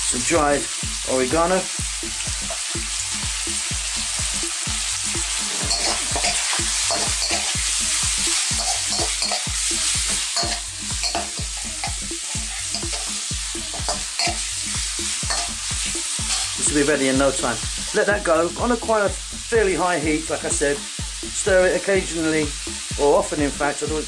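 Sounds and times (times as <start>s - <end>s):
food sizzling in oil: 0.0s - 24.0s
metal spoon scraping a wok: 5.5s - 13.1s, 13.7s - 14.5s, 15.3s - 15.6s, 16.2s - 16.6s.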